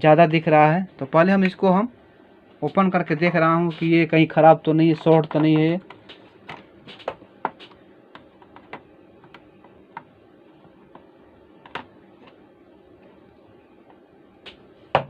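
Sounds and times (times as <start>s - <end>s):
hand tools clicking and tapping: 5.1s - 11.9s.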